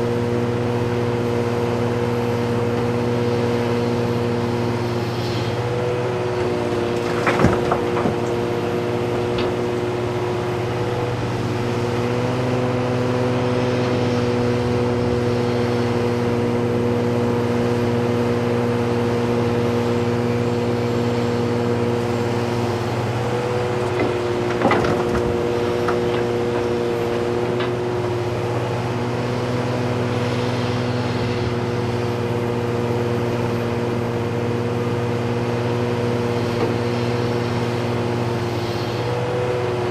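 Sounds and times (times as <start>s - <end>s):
heavy diesel engines running: 0.0s - 39.9s
clatter of knocks: 6.4s - 9.9s, 23.8s - 27.8s.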